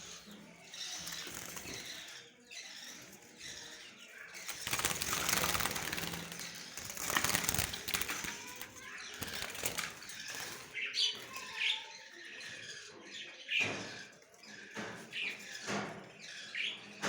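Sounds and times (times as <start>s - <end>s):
fluttering wings: 0.8s - 2.2s, 4.4s - 10.8s.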